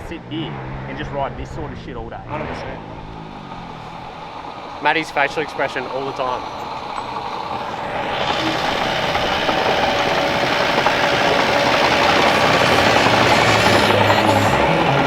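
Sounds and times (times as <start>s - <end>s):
engine running: 0.0s - 15.0s
music: 12.8s - 15.0s.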